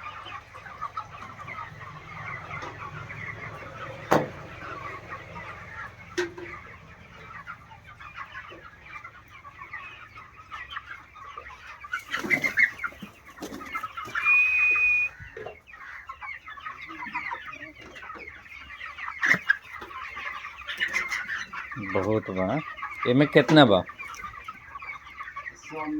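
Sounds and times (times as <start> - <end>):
chickens clucking: 0.0 - 25.9
loud high whistle-like tone: 14.1 - 15.2.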